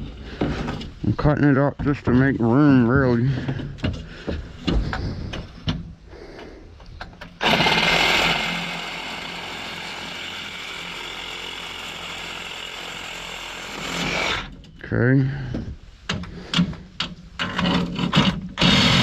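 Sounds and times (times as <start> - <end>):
reciprocating saw cutting metal: 7.4 - 14.5.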